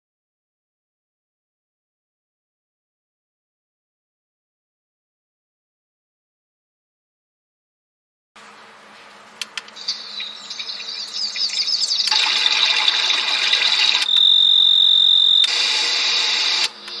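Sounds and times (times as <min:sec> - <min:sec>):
rapid high chirping: 0:09.8 - 0:12.2, 0:12.8 - 0:15.5
steady high tone: 0:13.0 - 0:17.0.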